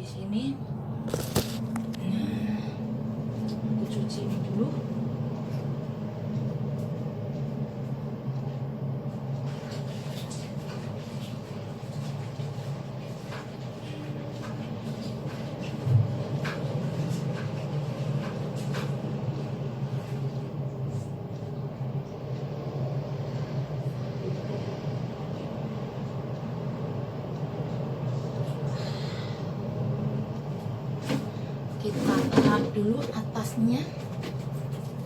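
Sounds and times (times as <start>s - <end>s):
light knocks and clatter: 33.8s - 35.0s.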